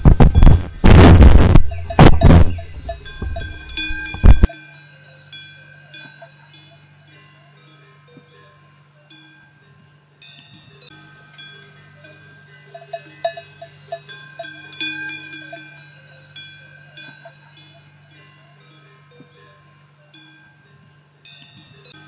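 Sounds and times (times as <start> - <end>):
steady low hum: 0.0 - 4.5
livestock bells clanking: 0.0 - 22.0.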